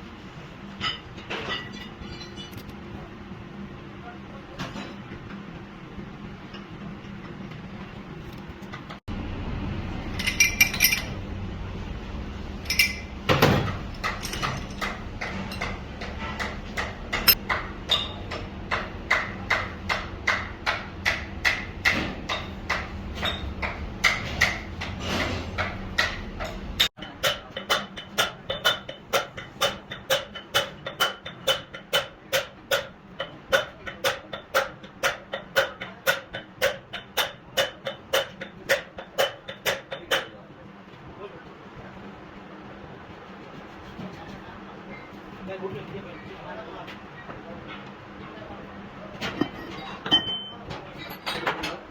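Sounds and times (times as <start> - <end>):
low workshop background: 0.0 - 51.9
hammer striking metal: 12.7 - 40.4.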